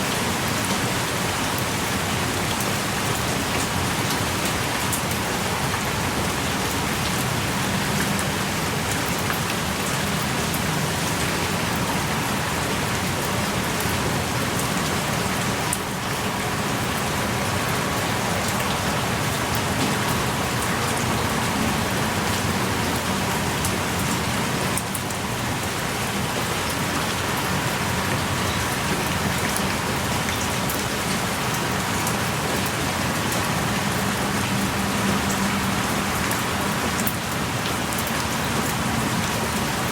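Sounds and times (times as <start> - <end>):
heavy rain: 0.0 - 39.9
raindrops ticking close by: 0.0 - 39.9.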